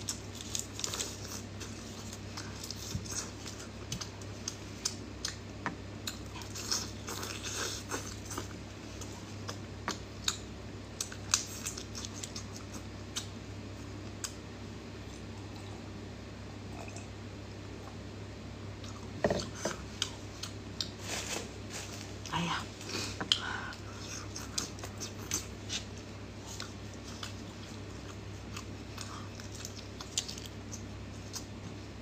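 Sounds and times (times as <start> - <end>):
chewing with wet mouth clicks: 0.0 - 13.4, 24.0 - 31.6
steady low hum: 0.0 - 32.0.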